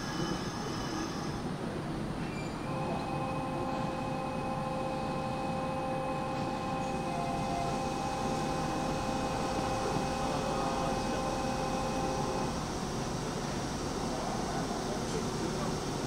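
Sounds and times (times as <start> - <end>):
electric train humming: 2.7 - 14.9.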